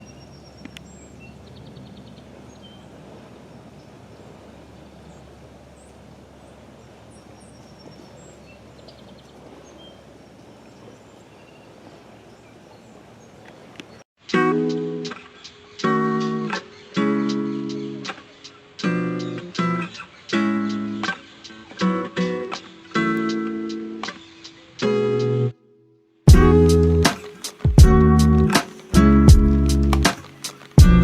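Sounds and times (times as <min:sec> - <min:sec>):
outdoor background noise: 0:00.0 - 0:25.6, 0:26.3 - 0:31.0
bird chirps and trills: 0:04.8 - 0:14.0, 0:15.0 - 0:24.8
strummed acoustic guitar music: 0:14.2 - 0:25.6, 0:26.3 - 0:31.0.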